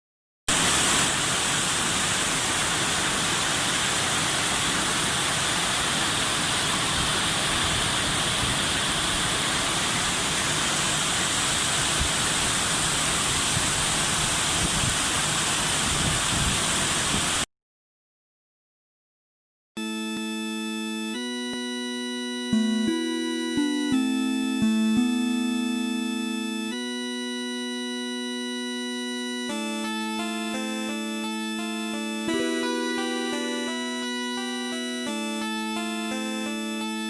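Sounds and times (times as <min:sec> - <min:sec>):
heavy rain pouring: 0:00.5 - 0:17.4.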